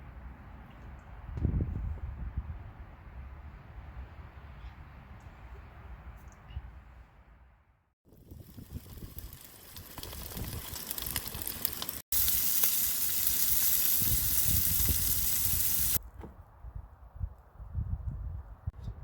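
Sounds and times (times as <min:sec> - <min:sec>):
wind rumbling on microphone: 0:01.2 - 0:03.4, 0:08.1 - 0:11.9, 0:13.2 - 0:19.0
food sizzling in a pan: 0:08.2 - 0:16.0.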